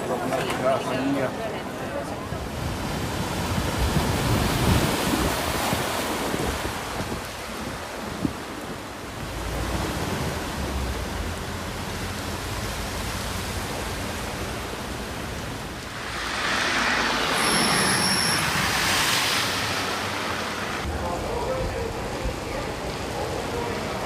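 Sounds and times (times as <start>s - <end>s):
wind and rain rushing: 2.4s - 23.1s
thin high-pitched tone: 15.9s - 20.2s.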